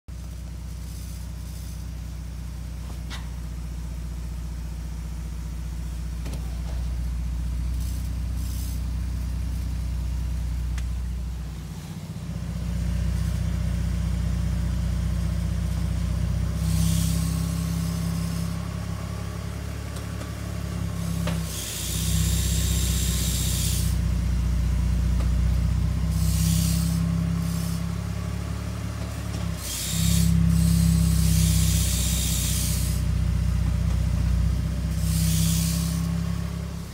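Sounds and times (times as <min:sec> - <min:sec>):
car engine drone: 0:00.1 - 0:36.9
hiss: 0:07.7 - 0:09.0, 0:16.5 - 0:18.7, 0:20.0 - 0:24.2, 0:26.0 - 0:28.3, 0:29.2 - 0:33.3, 0:34.7 - 0:36.9.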